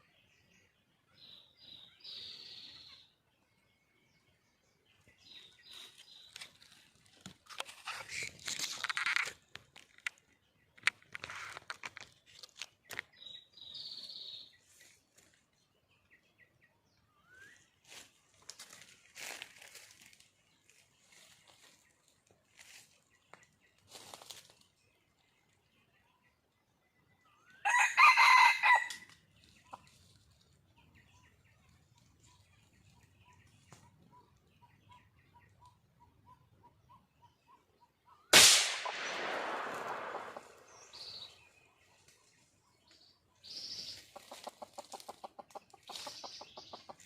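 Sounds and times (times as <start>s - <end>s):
rustling and crinkling: 5.7s - 13.2s, 17.8s - 25.3s.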